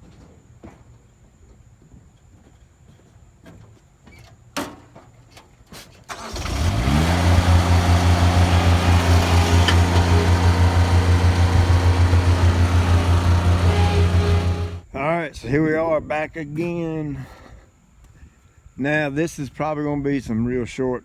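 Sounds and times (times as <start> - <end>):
engine starting and idling: 6.1 - 14.8.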